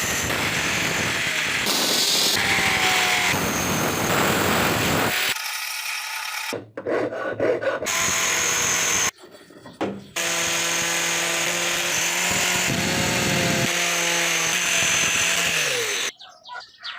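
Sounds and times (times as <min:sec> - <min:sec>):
power tool grinding metal: 0:00.0 - 0:06.6, 0:07.9 - 0:09.1, 0:10.2 - 0:16.1.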